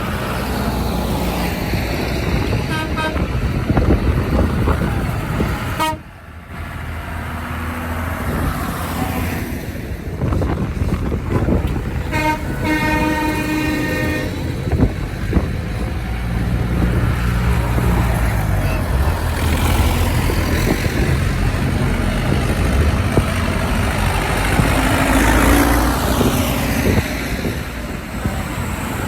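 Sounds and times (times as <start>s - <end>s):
tractor engines running: 0.0s - 29.0s
horn tooting: 2.6s - 3.6s, 5.6s - 6.2s, 11.8s - 15.0s.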